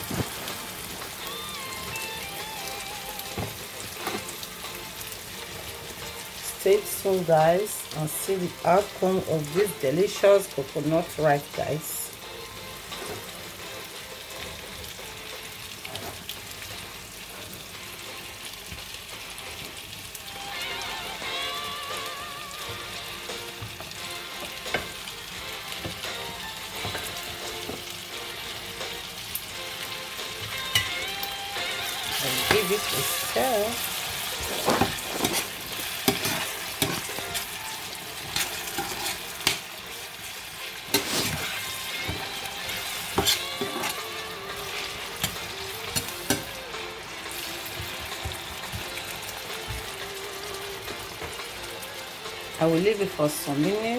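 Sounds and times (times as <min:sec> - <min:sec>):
crackles and pops: 0:00.0 - 0:03.4
vegetables sizzling in hot oil: 0:00.0 - 0:53.9
spoon scraping and knocking pan: 0:03.3 - 0:04.5, 0:26.8 - 0:27.9, 0:34.1 - 0:46.6.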